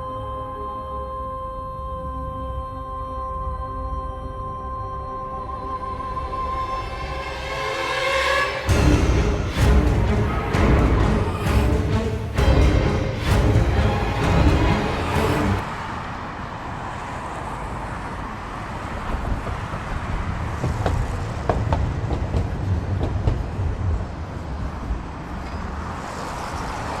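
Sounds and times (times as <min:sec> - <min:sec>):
road traffic rumble: 0:05.5 - 0:27.0.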